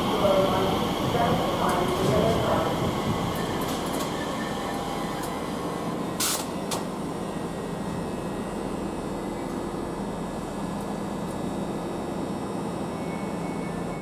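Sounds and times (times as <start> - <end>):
train humming: 0.0 - 8.1.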